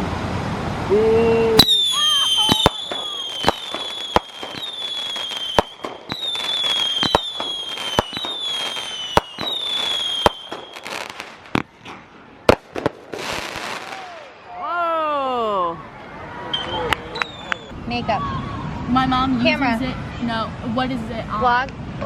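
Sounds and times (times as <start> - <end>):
firework whistles: 1.6 - 11.9, 16.5 - 17.8
firework bangs: 1.6 - 14.4
firework crackling: 1.6 - 14.4.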